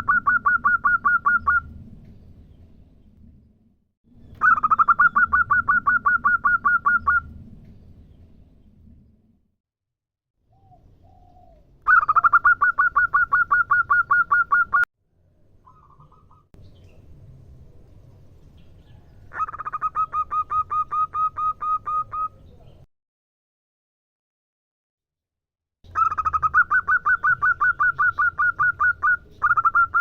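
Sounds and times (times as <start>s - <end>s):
dove cooing: 10.5s - 14.8s, 19.0s - 22.5s.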